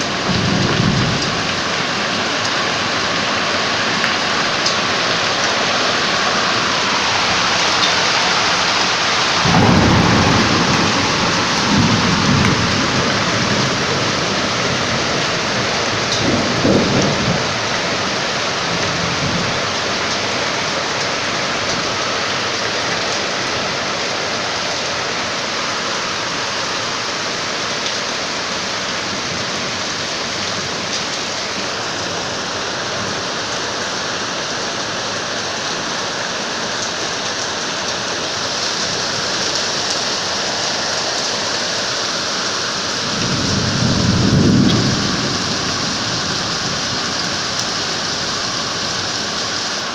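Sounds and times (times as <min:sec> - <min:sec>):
thunder rumble: 0:00.0 - 0:03.0, 0:05.2 - 0:19.8, 0:42.8 - 0:49.2
heavy rain pouring: 0:00.0 - 0:49.9.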